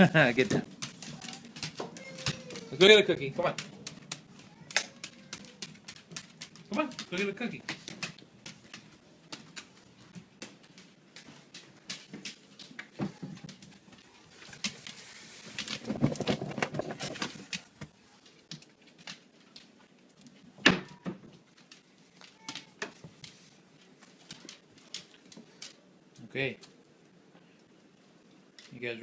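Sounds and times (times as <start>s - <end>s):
rustling: 0.0s - 29.0s.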